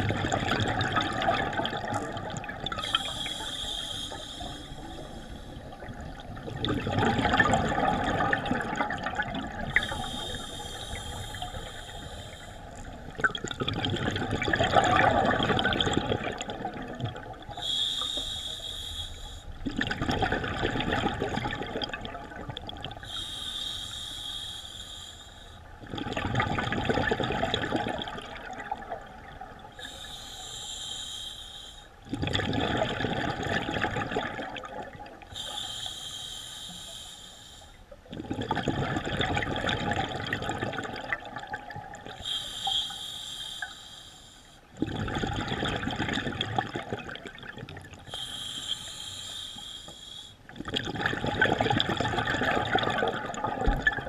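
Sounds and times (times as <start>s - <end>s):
exhaled bubbles rushing: 0.0s - 3.2s, 5.6s - 10.0s, 12.9s - 17.6s, 19.6s - 23.0s, 25.8s - 29.7s, 32.1s - 35.2s, 38.1s - 42.2s, 44.8s - 48.0s, 50.5s - 54.0s
regulator hissing inhale: 2.8s - 5.7s, 9.7s - 12.9s, 17.6s - 19.6s, 23.0s - 25.7s, 29.8s - 32.0s, 35.3s - 37.8s, 42.2s - 44.7s, 48.1s - 50.5s.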